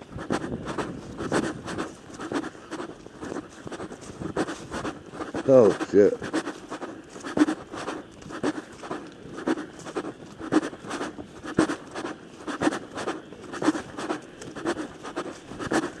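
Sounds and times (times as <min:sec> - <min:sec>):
footsteps crunching on ground: 0:00.0 - 0:16.0.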